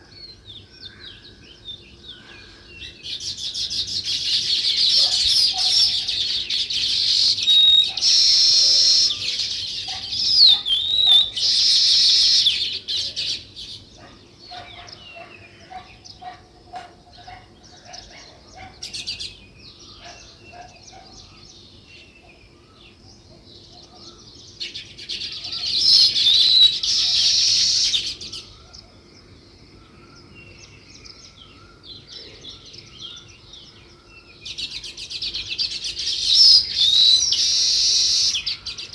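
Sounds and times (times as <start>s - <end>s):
small songbirds chirping: 0.0s - 38.9s.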